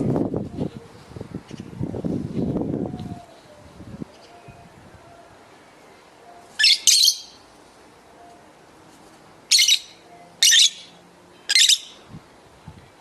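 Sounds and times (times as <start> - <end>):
lovebird shrill calls: 6.6 - 7.4, 9.5 - 10.9, 11.5 - 12.0.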